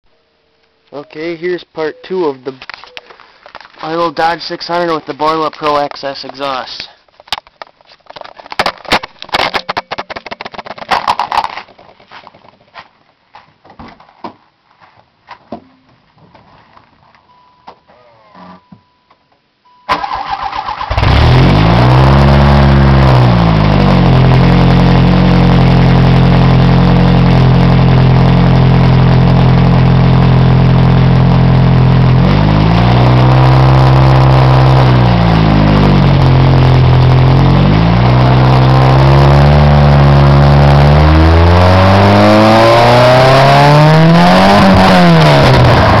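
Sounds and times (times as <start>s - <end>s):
clicks and knocks: 7.2s - 12.6s
brief chime: 18.6s - 19.1s
car engine revving and idling: 20.9s - 46.0s.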